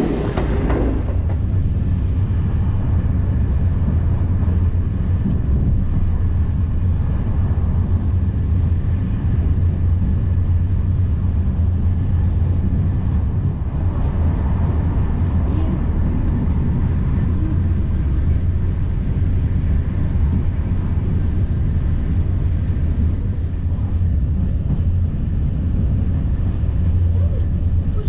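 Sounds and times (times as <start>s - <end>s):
low drone: 0.0s - 3.7s
train coach rumble and rush: 0.0s - 28.0s.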